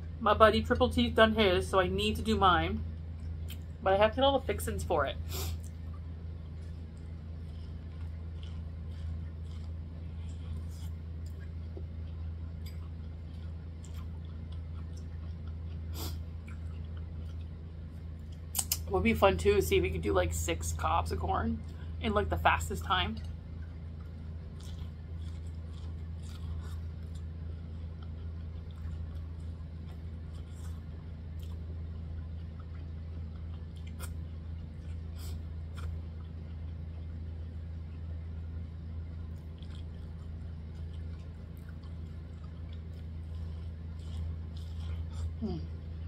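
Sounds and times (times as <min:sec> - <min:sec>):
steady low hum: 0:00.0 - 0:46.0
person chewing wetly: 0:05.4 - 0:18.8, 0:23.2 - 0:46.0.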